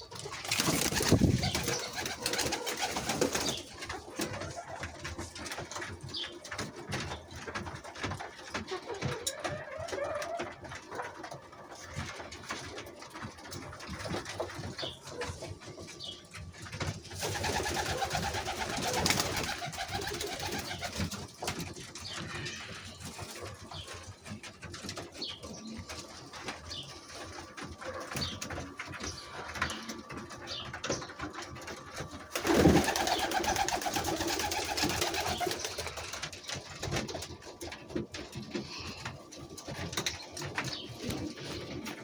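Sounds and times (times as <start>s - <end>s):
birds cooing: 0.0s - 7.2s, 17.2s - 42.0s.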